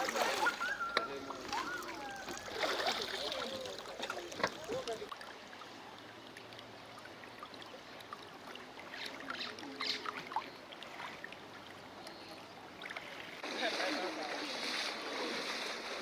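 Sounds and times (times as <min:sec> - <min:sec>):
floodwater flowing: 0:00.0 - 0:16.0
water splashes and drips: 0:00.0 - 0:16.0.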